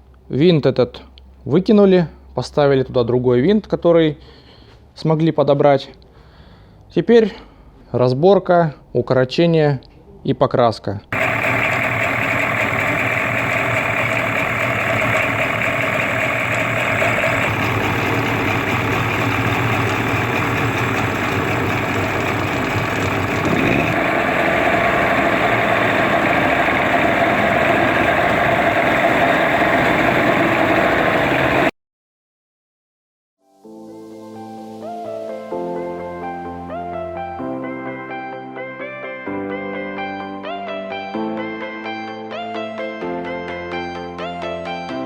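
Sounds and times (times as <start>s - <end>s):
outboard motor running: 11.2s - 31.7s.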